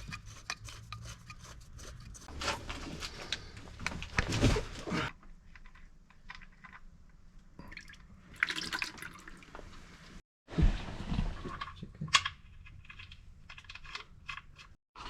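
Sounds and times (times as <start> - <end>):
liquid dripping and trickling: 7.6 - 9.7.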